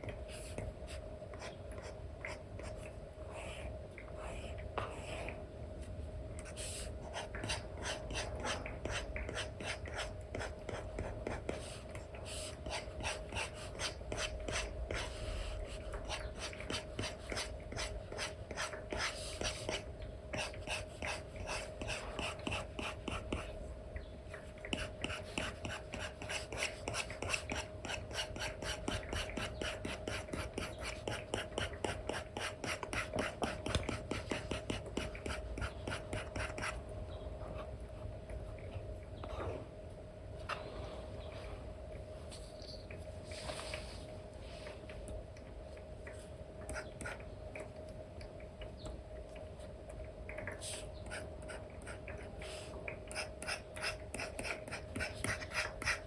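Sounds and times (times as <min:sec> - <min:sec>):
stylus scratching on screen film: 0:53.1 - 0:56.0.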